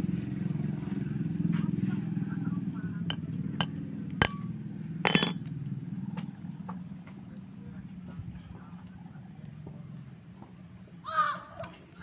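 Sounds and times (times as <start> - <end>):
hand tools clinking on metal: 5.1 - 5.5
ringing metallic clatter: 5.1 - 5.5.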